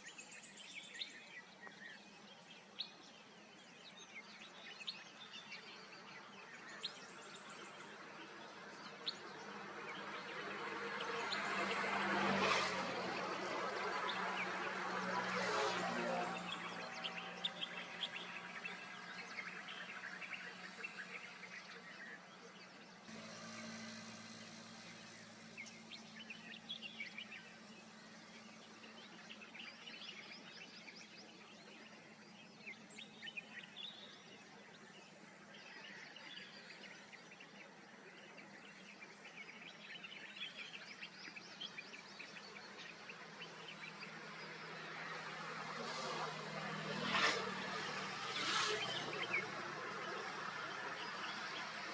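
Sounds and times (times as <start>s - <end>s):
small birds chirping: 0.0s - 51.9s
steady low hum: 23.0s - 29.4s.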